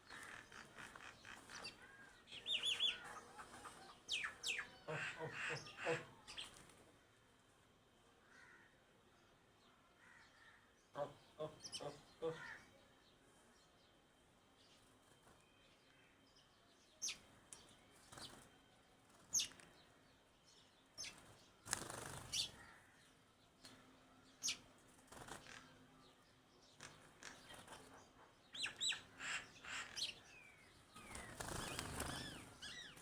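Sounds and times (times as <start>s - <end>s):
small birds chirping: 0.0s - 6.6s, 21.0s - 22.8s, 24.4s - 33.0s
wing flutters: 21.1s - 22.6s, 31.0s - 33.0s.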